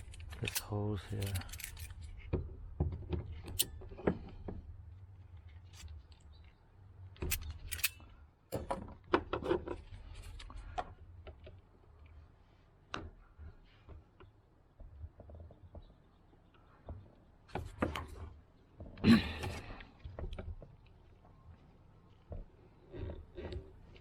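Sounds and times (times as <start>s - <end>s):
hand tool clicks and snips: 0.0s - 1.9s, 7.3s - 8.0s.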